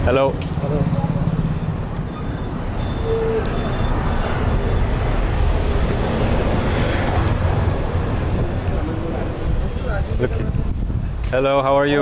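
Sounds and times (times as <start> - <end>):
road traffic rumble: 0.0 - 12.0
short tone: 2.1 - 5.0.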